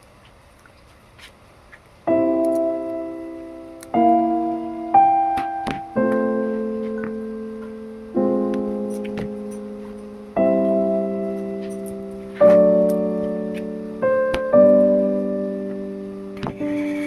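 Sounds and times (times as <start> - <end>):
soft piano chords: 2.0 - 17.0.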